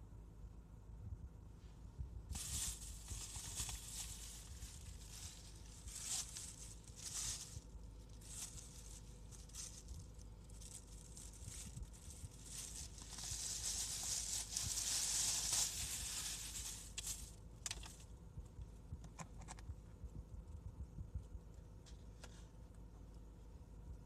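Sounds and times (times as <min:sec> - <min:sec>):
packaging rustling and crinkling: 0:02.3 - 0:18.0.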